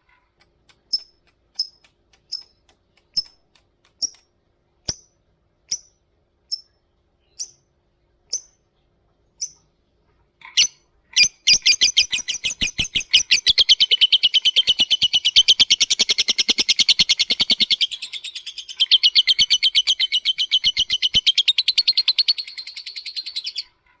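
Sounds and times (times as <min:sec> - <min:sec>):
lovebird chattering trill: 0:10.6 - 0:23.7.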